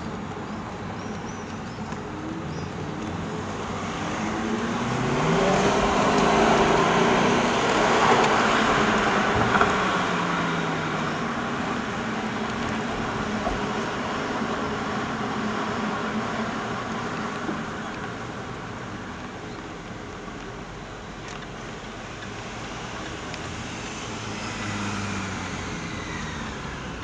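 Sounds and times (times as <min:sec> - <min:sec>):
car engine accelerating hard: 0:01.9 - 0:18.9, 0:20.7 - 0:27.0.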